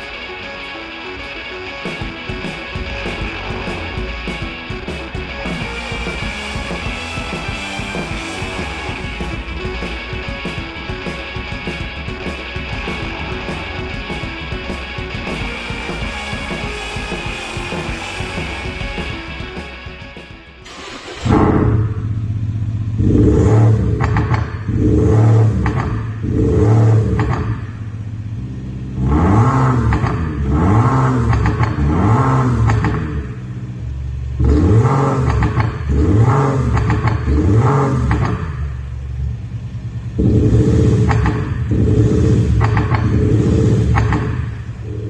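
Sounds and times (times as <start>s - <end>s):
synthetic engine note revving: 2.0s - 27.4s.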